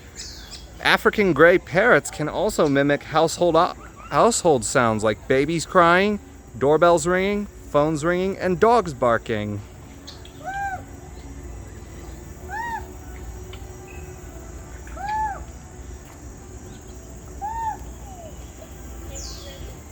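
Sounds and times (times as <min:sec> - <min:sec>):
parrot whistling: 0:12.4 - 0:15.5, 0:16.8 - 0:19.7.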